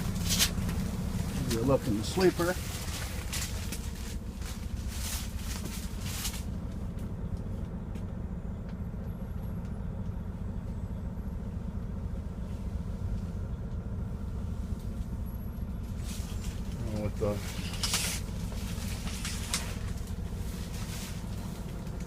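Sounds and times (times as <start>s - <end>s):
diesel engine idling: 0.0s - 22.0s
rustle: 0.1s - 6.8s, 15.8s - 22.0s.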